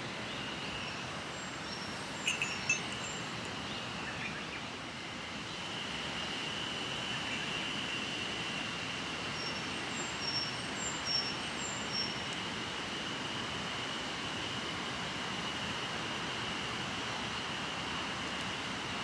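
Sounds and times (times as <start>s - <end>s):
river flowing: 0.0s - 3.6s.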